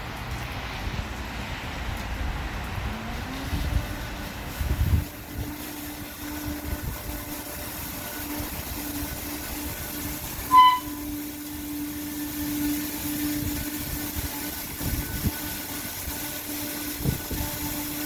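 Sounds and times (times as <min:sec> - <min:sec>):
car wash machinery humming: 0:00.0 - 0:18.0
loud electronic beep: 0:10.5 - 0:11.0.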